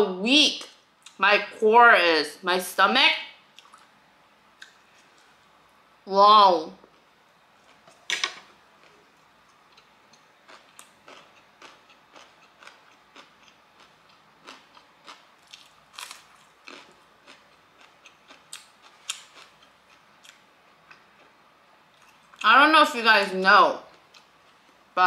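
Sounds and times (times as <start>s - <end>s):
chewing noodles: 8.8s - 21.3s.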